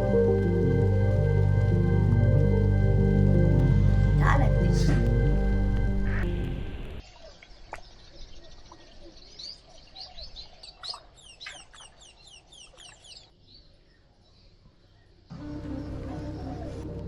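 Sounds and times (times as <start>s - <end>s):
small bird chirping: 7.0s - 15.3s.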